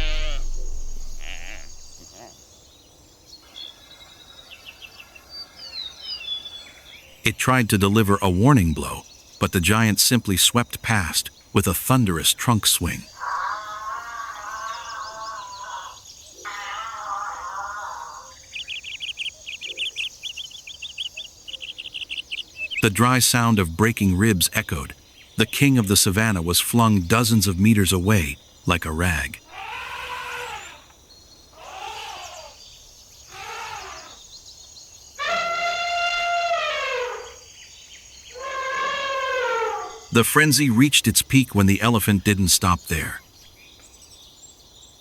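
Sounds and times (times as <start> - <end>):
elephant trumpeting: 0.0 - 2.0, 29.5 - 30.8, 35.2 - 37.4, 38.4 - 40.4
rapid high chirps: 0.0 - 2.0, 18.3 - 29.4
wavering animal calls: 0.0 - 2.3, 11.1 - 30.9, 31.6 - 32.6, 33.3 - 34.2, 35.2 - 37.5, 38.3 - 43.2.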